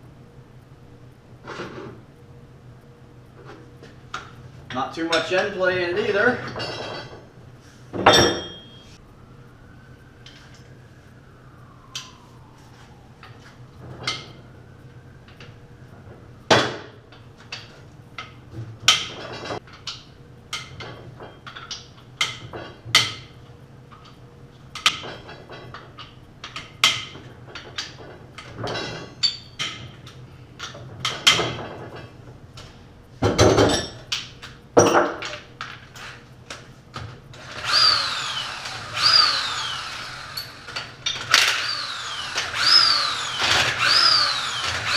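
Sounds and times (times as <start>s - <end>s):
metal tools clanking: 6.3s - 7.2s, 28.4s - 29.9s
power tool bursts: 37.4s - 44.9s.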